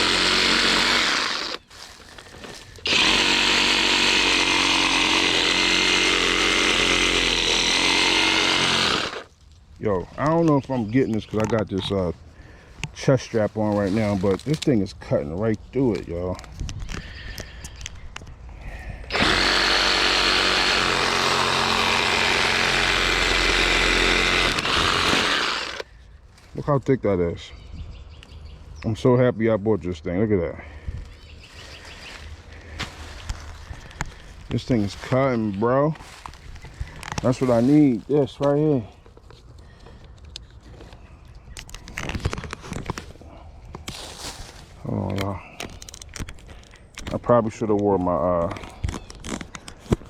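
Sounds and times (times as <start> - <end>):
reciprocating saw cutting branch: 0.0 - 1.7, 2.8 - 9.3, 19.1 - 25.8.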